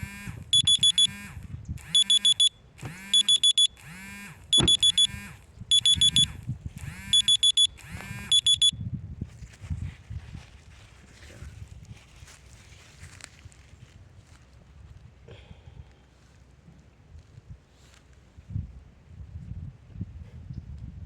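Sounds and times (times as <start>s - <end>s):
electronic alarm beeping: 0.0s - 8.8s.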